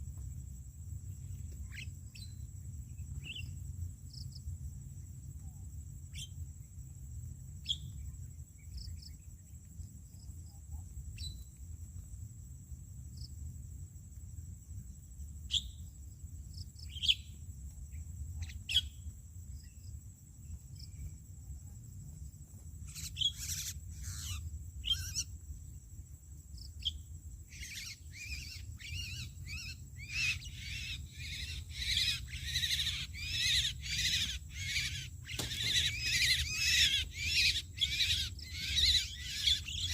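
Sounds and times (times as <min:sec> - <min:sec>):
starlings calling: 0:22.9 - 0:25.3, 0:27.5 - 0:39.9.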